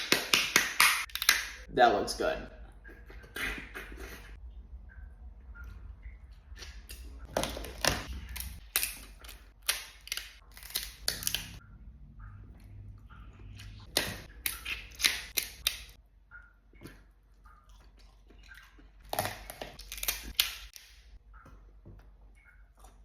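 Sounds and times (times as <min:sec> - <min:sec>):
crab shell cracking: 0:07.6 - 0:11.6, 0:13.9 - 0:16.0, 0:19.0 - 0:20.9.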